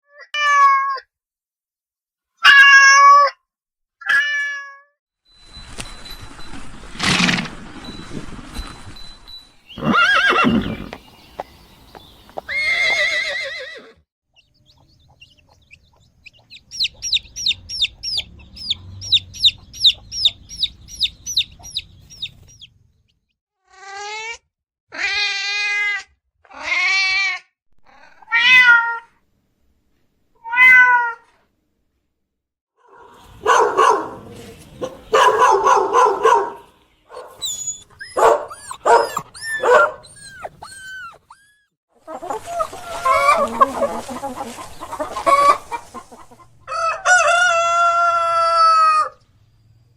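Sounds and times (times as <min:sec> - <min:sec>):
animal calls: 0:09.7 - 0:13.9, 0:32.9 - 0:47.2.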